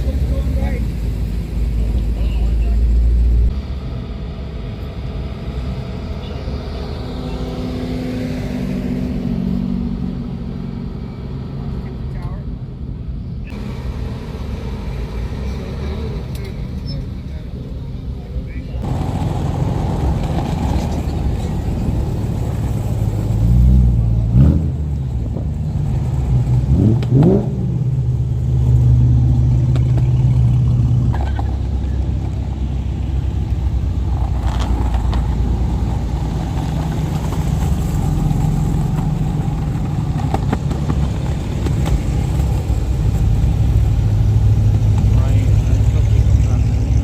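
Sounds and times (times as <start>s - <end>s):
car engine running: 0.0s - 8.8s, 10.0s - 47.0s
engine revving: 18.8s - 47.0s.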